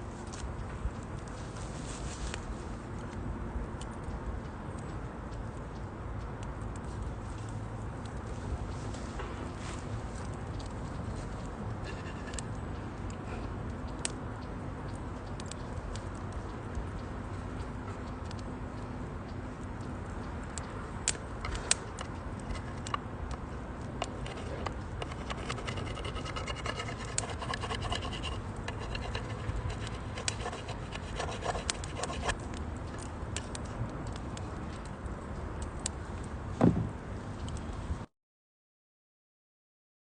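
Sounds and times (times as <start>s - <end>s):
wood fire crackling and popping: 19.5s - 36.3s
heavy thump: 36.6s - 36.9s.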